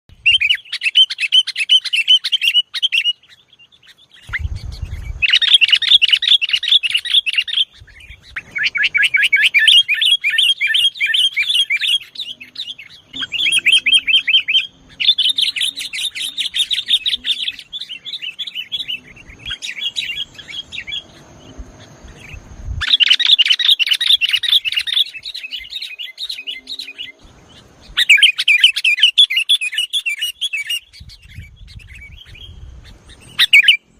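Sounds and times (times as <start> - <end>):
bird fast chattering song: 0.1 - 33.9.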